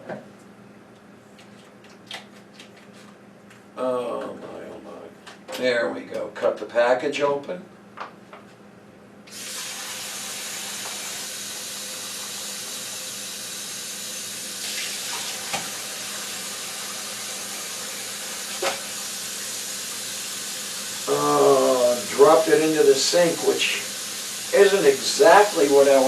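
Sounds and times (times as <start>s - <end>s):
tap water running: 9.3s - 26.0s.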